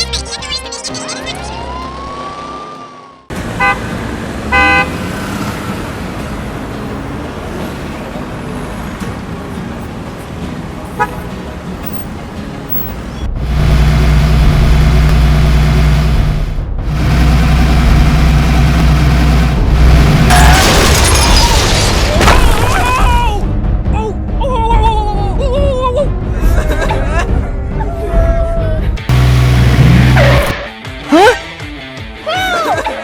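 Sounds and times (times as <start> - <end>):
traffic noise: 1.0 - 22.1, 29.1 - 30.6
car horn toots: 3.6 - 3.9, 4.5 - 5.0, 11.0 - 11.3
engine running loudly: 13.3 - 20.4, 29.1 - 30.6.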